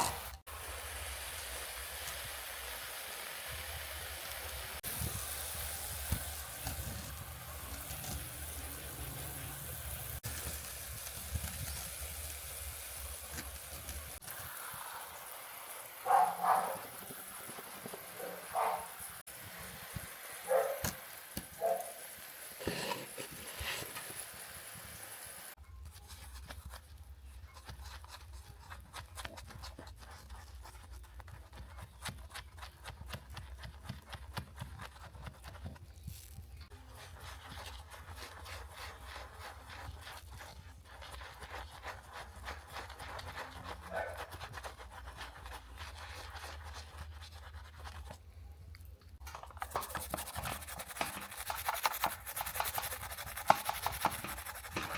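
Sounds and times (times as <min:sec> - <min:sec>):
brush scrubbing: 0:16.0 - 0:19.7, 0:22.6 - 0:24.4, 0:25.9 - 0:48.3, 0:49.3 - 0:54.9.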